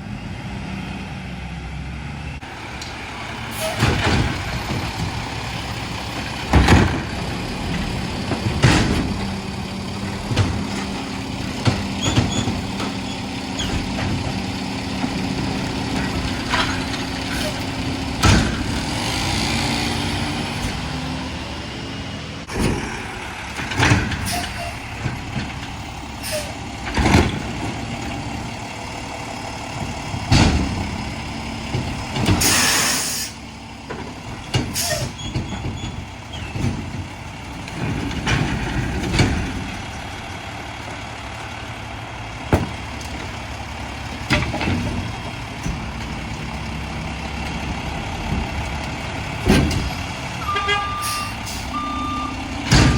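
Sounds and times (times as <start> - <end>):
garbage truck running: 0.0 - 52.9
knocks and clanks: 2.8 - 21.1, 22.5 - 33.0, 33.8 - 41.4, 42.4 - 52.9
air brake hiss: 32.4 - 33.4.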